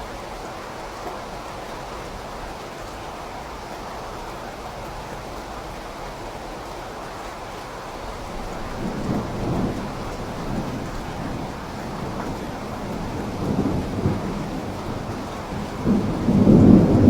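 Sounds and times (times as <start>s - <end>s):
steady rain: 0.0s - 17.0s
rolling thunder: 8.1s - 17.0s.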